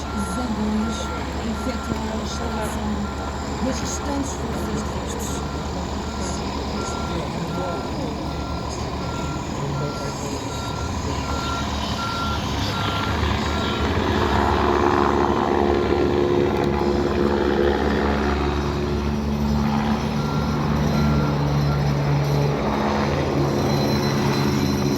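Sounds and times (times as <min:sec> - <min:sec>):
engine hum: 0:00.0 - 0:24.9
reversing beeper: 0:00.0 - 0:24.9.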